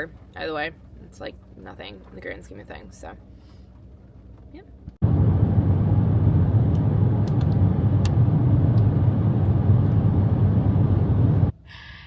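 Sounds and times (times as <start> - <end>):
car road and engine noise: 5.0 - 11.5.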